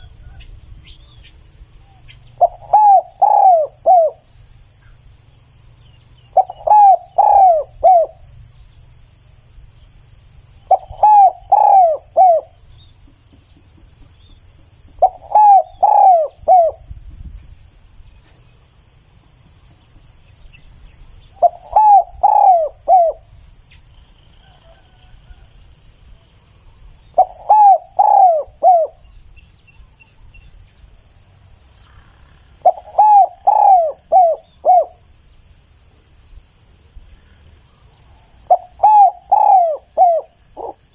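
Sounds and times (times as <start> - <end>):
faint insect chirring: 0.0 - 40.9
dove cooing: 1.9 - 4.3, 6.3 - 8.2, 10.6 - 12.6, 14.9 - 16.9, 21.3 - 23.2, 27.2 - 29.1, 31.8 - 35.1, 38.5 - 40.9.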